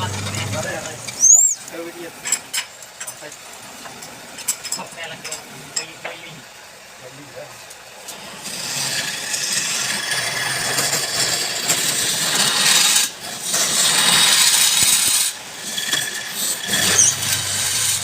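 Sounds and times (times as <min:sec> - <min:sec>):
lathe tool cutting wood: 0:00.0 - 0:01.2, 0:08.1 - 0:18.0.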